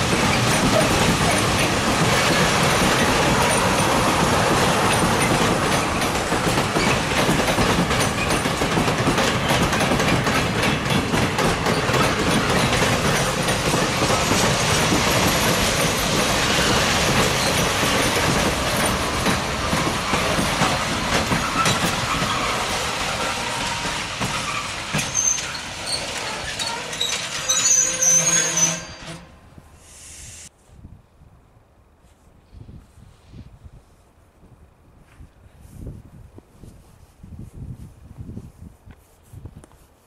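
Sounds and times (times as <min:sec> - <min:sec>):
wheels clacking over track: 0:00.0 - 0:27.9
freight train rolling past: 0:00.0 - 0:30.5
train wheels squealing: 0:14.1 - 0:18.1, 0:21.3 - 0:29.3.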